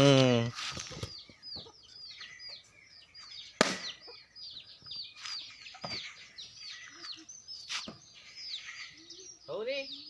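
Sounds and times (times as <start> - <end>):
birds chirping: 0.0 - 10.0
sharp crack: 3.6 - 4.1.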